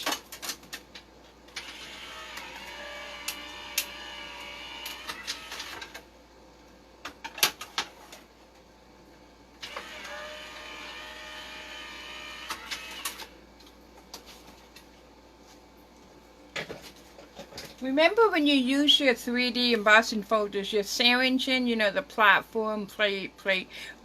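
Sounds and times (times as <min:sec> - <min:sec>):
machine motor whining: 0:01.6 - 0:05.9, 0:09.6 - 0:13.3.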